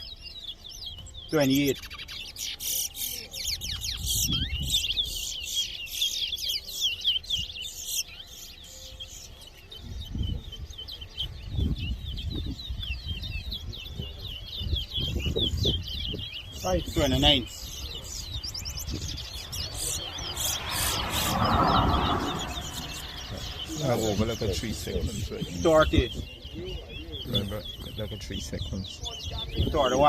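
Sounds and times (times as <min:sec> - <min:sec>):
finch singing whistled notes: 0:00.0 - 0:30.0
low rumble: 0:18.3 - 0:25.3.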